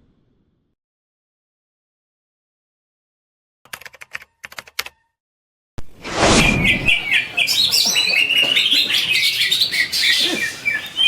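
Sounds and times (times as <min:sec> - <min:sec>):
bird singing chirping notes: 0:06.4 - 0:11.0.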